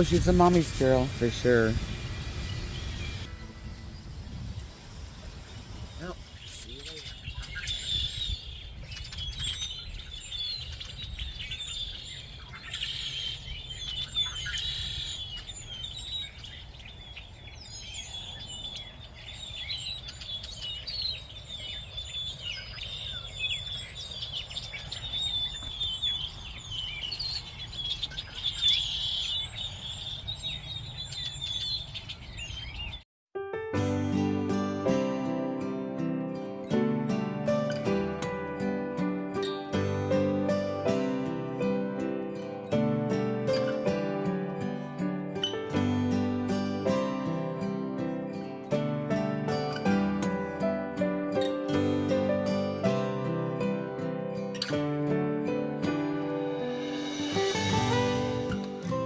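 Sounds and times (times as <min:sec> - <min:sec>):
birds chirping chorus: 0:00.0 - 0:33.0.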